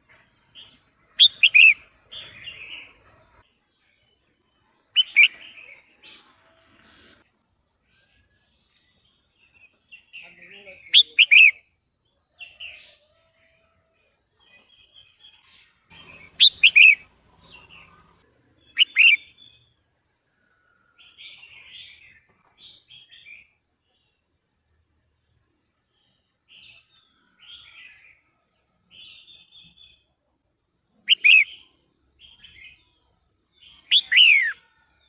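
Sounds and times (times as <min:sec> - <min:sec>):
bird chattering notes: 0:01.2 - 0:01.8, 0:15.9 - 0:17.0, 0:18.8 - 0:19.2, 0:31.1 - 0:31.4.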